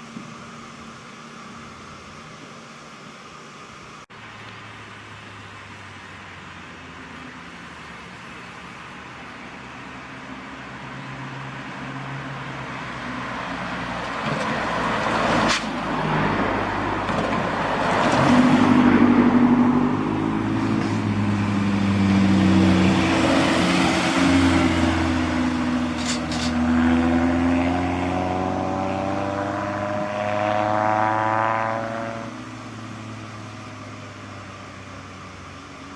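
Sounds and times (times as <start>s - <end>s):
large truck engine passing: 12.9s - 33.5s.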